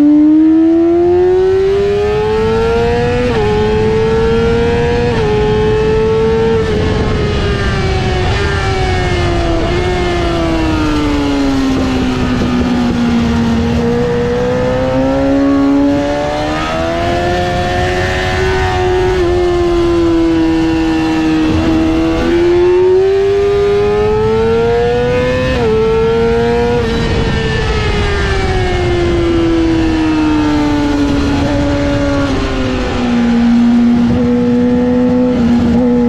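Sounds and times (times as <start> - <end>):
motorcycle engine at high revs: 0.0 - 36.0.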